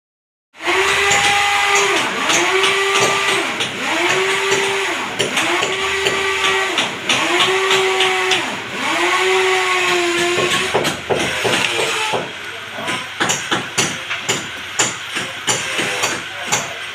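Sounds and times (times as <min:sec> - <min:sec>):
power tool motor revving: 0:00.6 - 0:12.4
whirring grinding noise: 0:00.6 - 0:16.9.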